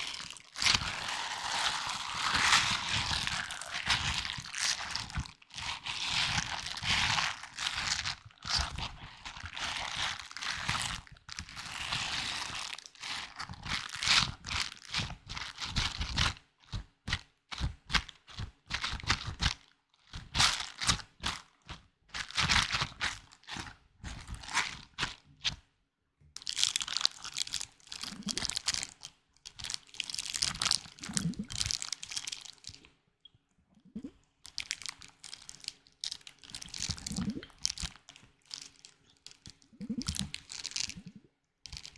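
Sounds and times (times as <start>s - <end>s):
crinkling and crunching by hand: 0.0s - 25.7s, 26.4s - 33.0s, 34.0s - 41.9s.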